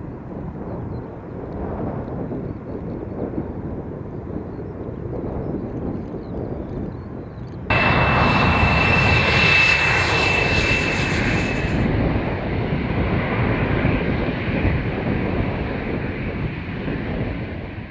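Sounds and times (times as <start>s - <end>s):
jet engines whining and rumbling: 7.7s - 17.9s.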